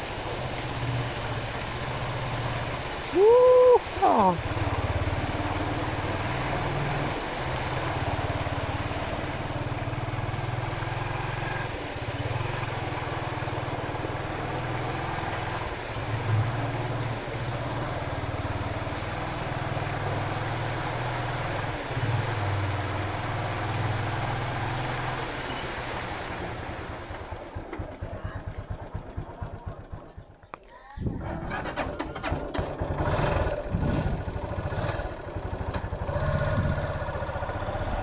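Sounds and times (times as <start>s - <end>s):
motorcycle engine running: 27.6s - 30.5s, 31.2s - 38.0s.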